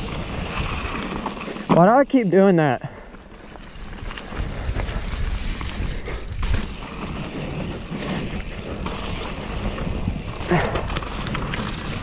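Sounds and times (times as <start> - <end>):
bike tyres rumbling: 0.0 - 12.0
wind buffeting microphone: 3.3 - 12.0.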